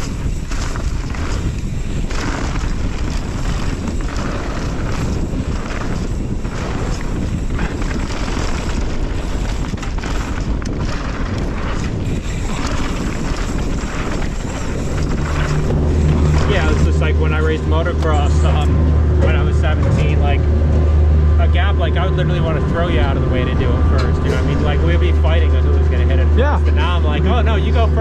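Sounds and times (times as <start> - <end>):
bike rattling over dirt trail: 0.0 - 28.0
wind buffeting microphone: 0.0 - 28.0
low steady hum: 14.9 - 27.0.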